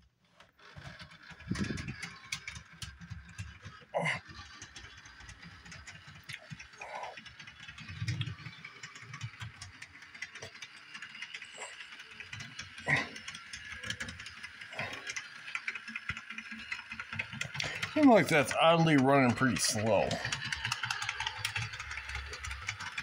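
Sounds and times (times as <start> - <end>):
clicking gears or wheels: 0.0 - 23.0
model train motor whirring: 0.0 - 23.0.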